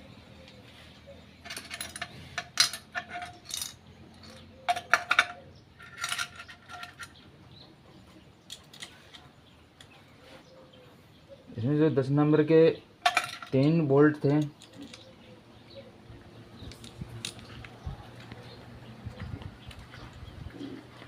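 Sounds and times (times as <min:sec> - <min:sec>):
small metal parts clinking: 0:01.4 - 0:07.3, 0:08.4 - 0:09.9, 0:13.0 - 0:15.2, 0:16.6 - 0:17.8.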